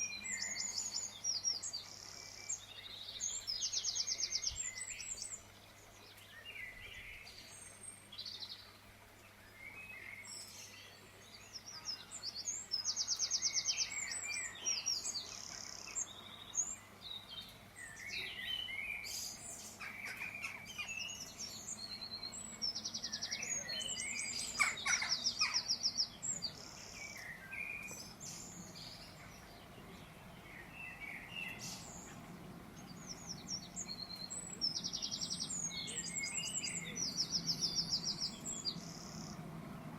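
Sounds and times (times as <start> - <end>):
small birds chirping: 0.0 - 39.9
fast high bird trills: 24.2 - 25.9.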